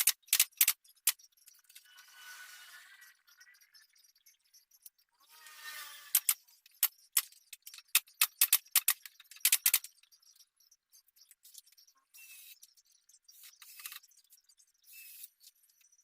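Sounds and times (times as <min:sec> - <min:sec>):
sharp clicks and knocks: 0:00.0 - 0:01.8, 0:06.1 - 0:10.1.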